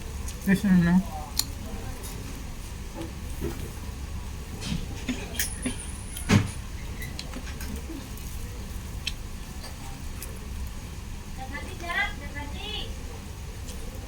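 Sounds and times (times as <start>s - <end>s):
mouth sounds of eating: 0.0s - 3.2s, 7.0s - 10.8s
low background hum: 0.0s - 14.0s.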